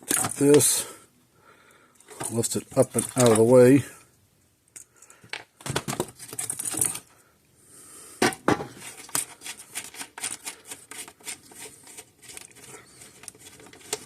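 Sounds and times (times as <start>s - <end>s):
metal parts clicking and clattering: 4.8s - 7.1s.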